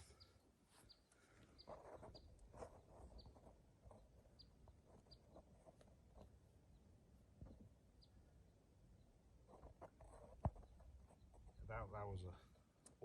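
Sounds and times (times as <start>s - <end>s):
small bird chirping: 0.0s - 12.8s.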